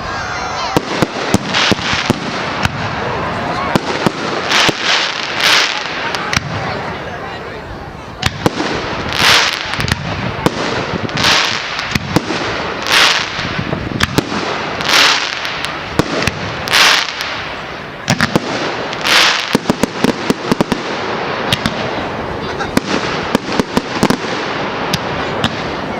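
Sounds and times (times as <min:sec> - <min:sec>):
firework hissing rush: 0:00.0 - 0:06.6
firework bangs: 0:00.0 - 0:07.3, 0:08.1 - 0:25.9
crackling pops: 0:08.2 - 0:21.9, 0:22.8 - 0:25.8.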